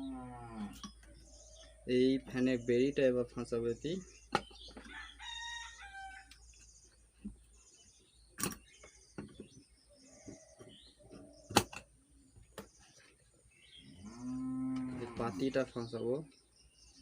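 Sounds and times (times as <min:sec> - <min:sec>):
rooster crowing: 0:04.9 - 0:06.3.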